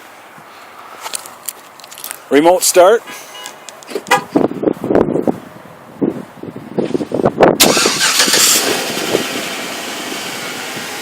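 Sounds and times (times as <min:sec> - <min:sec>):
car engine starting and running: 0:07.6 - 0:11.0.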